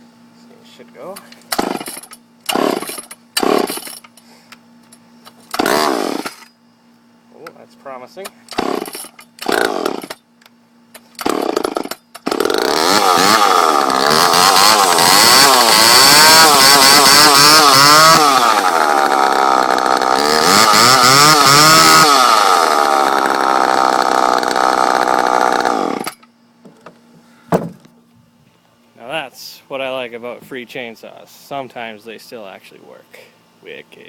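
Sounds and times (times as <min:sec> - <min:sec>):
chainsaw engine revving: 0:01.5 - 0:04.0, 0:05.5 - 0:06.5, 0:08.5 - 0:10.2, 0:11.1 - 0:26.2.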